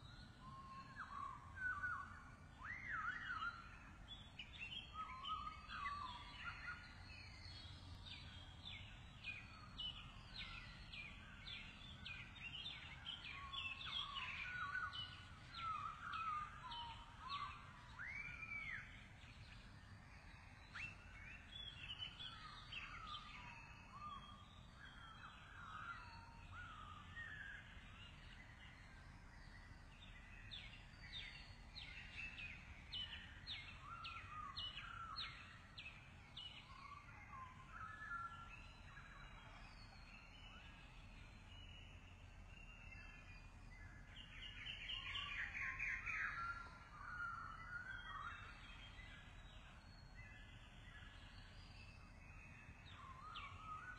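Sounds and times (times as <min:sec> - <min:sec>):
faint low background noise: 0:00.0 - 0:53.9
small birds chirping: 0:00.0 - 0:53.9.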